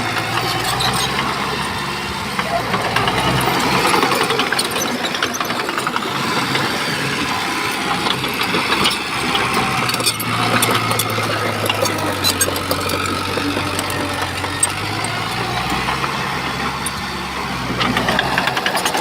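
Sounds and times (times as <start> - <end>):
bulldozer diesel engine running: 0.0 - 19.0
metallic clanks and rattles: 7.9 - 16.1.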